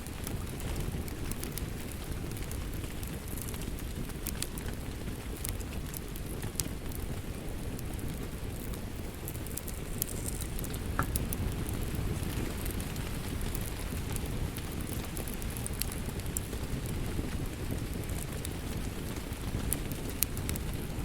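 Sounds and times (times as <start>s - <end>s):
steady rain: 0.0s - 21.0s
wood fire crackling and popping: 0.0s - 21.0s.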